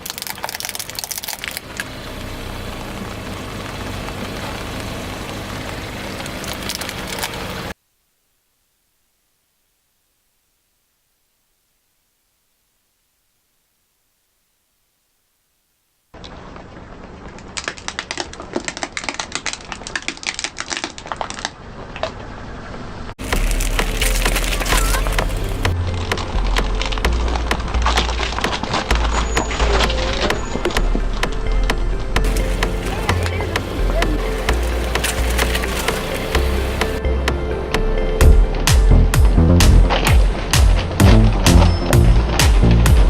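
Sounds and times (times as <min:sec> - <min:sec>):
car engine running: 0:01.6 - 0:07.7, 0:23.2 - 0:37.5, 0:38.2 - 0:43.0
tyre crushing crunchy objects: 0:23.2 - 0:37.0, 0:38.2 - 0:43.0.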